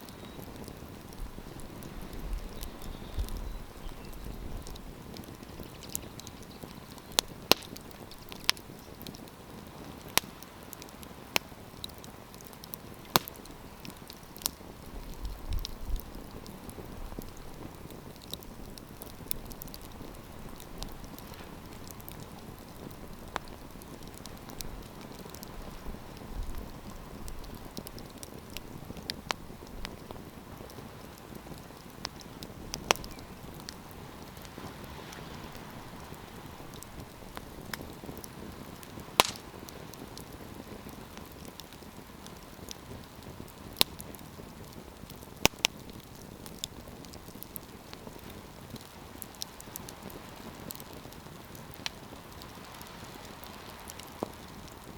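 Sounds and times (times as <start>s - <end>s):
campfire burning with crackles: 0.0s - 54.9s.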